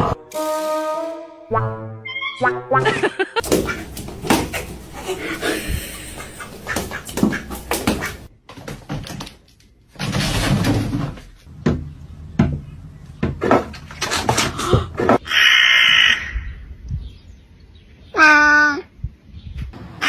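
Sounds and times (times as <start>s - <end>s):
sharp knocks and thumps: 3.4s - 8.3s.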